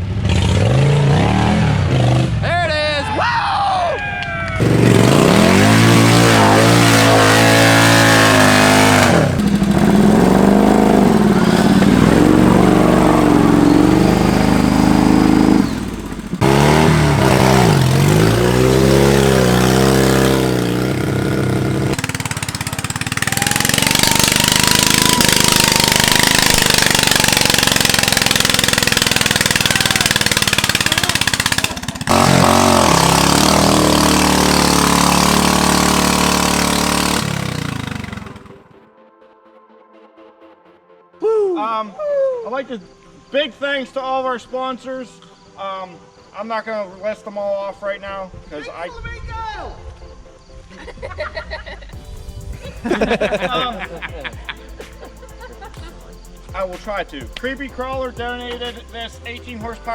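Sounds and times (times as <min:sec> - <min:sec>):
lawn tractor engines revving: 0:00.0 - 0:02.6, 0:04.5 - 0:38.7, 0:52.0 - 0:59.9.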